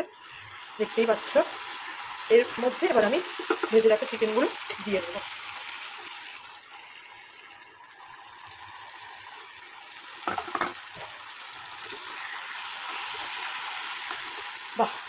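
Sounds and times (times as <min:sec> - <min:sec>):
sauce and vegetables sizzling: 0:00.0 - 0:15.0
food pieces clattering into pan: 0:10.2 - 0:10.8.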